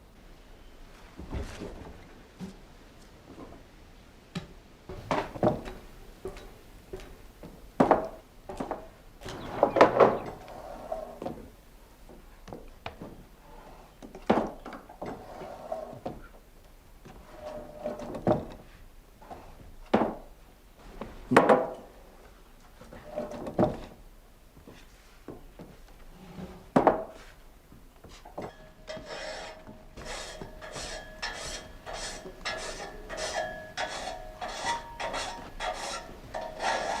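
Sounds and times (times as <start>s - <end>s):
wooden knocks and creaks: 4.9s - 10.6s
squeaks: 9.2s - 11.1s
saw blade rasping through timber: 28.9s - 37.0s.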